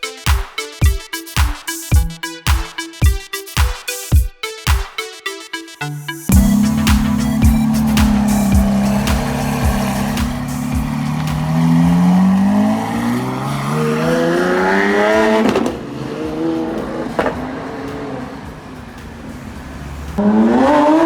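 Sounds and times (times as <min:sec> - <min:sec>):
sharp exhaust pop: 0:06.3 - 0:12.6
car engine accelerating hard: 0:06.3 - 0:18.5, 0:19.4 - 0:21.0.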